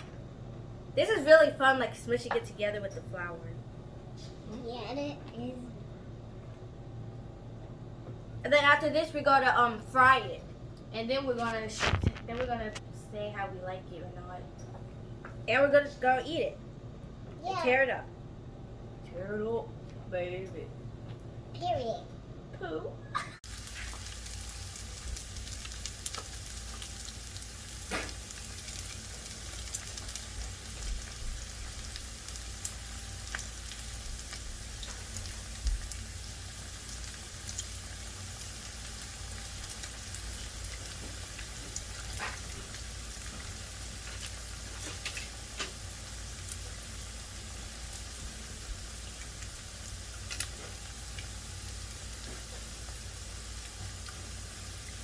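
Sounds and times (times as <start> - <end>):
food sizzling in hot oil: 23.4 - 55.0
oil popping and crackling: 23.4 - 55.0.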